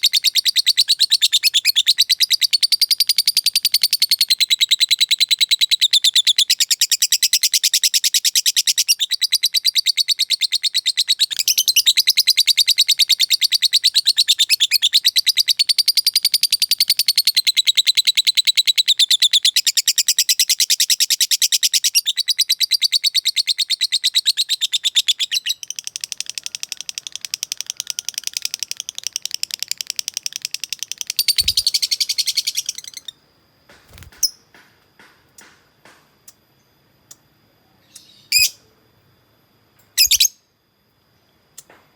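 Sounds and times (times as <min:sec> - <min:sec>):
lovebird rapid chattering trill: 0:23.5 - 0:33.2, 0:40.0 - 0:40.4.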